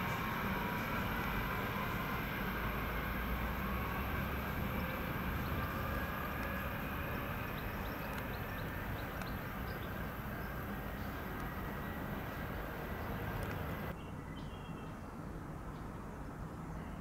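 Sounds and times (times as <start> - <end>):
distant train rumbling: 0.0 - 14.0.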